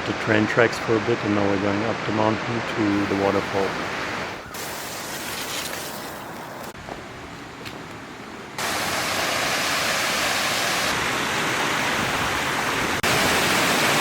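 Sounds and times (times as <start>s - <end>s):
waterfall rushing: 2.8s - 6.7s, 8.6s - 14.0s.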